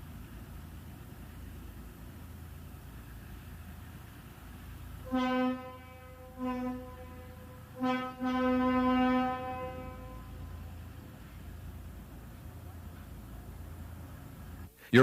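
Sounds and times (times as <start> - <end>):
train rumbling: 0.0 - 15.0
train whistle blasts: 5.0 - 10.8.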